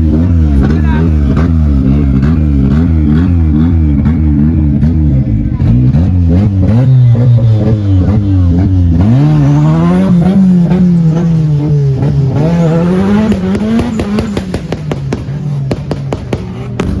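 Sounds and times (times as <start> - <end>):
car engine revving: 0.0 - 17.0
exhaust pops: 13.1 - 17.0.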